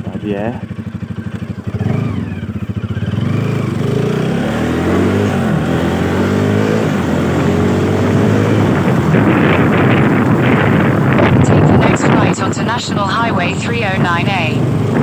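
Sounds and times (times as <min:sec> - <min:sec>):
motorcycle engine accelerating: 0:00.0 - 0:15.0
wind buffeting microphone: 0:06.4 - 0:15.0.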